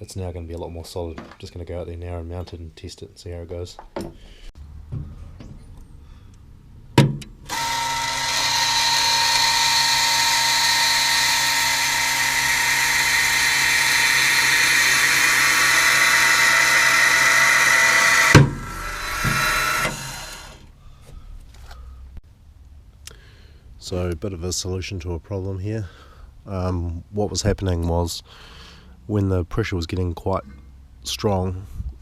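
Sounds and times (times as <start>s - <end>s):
motor stopping knock: 7.5s - 20.6s
small electric motor whining: 7.5s - 20.7s.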